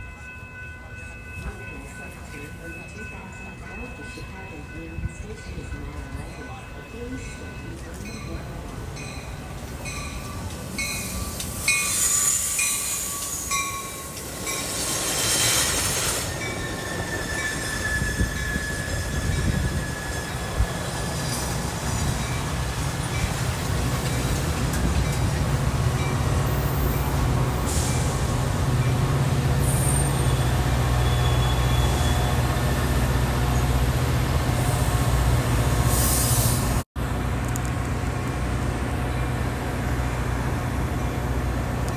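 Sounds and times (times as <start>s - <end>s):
train low rumble: 0.0s - 41.9s
train wheels squealing: 9.8s - 25.4s, 29.6s - 32.9s.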